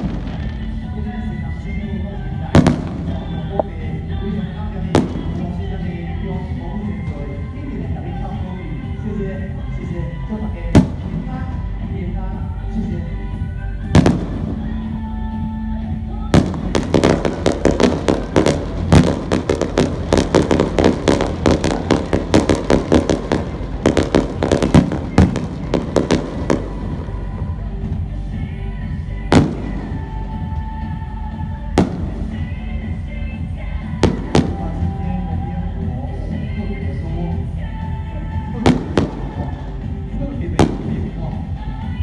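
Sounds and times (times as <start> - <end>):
fireworks bangs: 0.0 - 0.9, 2.4 - 4.0, 4.9 - 5.9, 10.7 - 11.6, 14.0 - 14.9, 16.3 - 27.6, 29.3 - 30.7, 31.8 - 32.6, 33.9 - 35.0, 38.6 - 40.0, 40.6 - 41.4
background music: 0.0 - 42.0.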